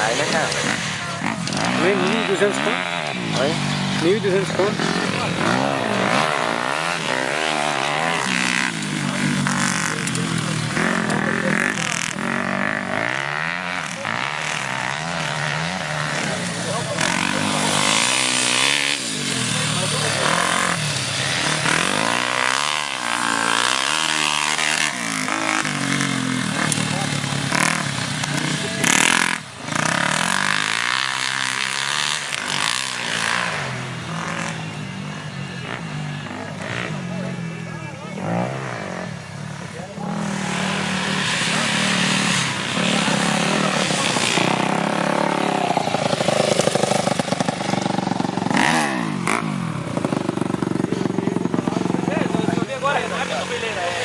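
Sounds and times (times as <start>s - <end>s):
motorbike engines revving: 0.0s - 54.0s.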